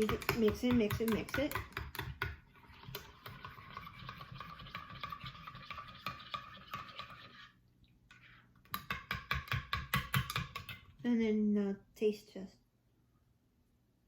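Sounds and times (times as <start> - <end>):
swishing scrape of stirring: 1.5 - 8.6.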